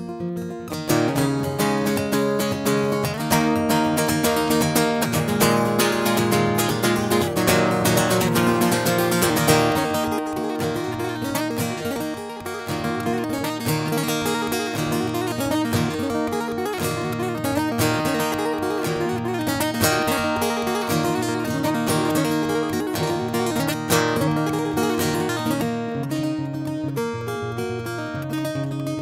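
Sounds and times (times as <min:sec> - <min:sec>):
acoustic guitar strumming: 0:00.0 - 0:29.0.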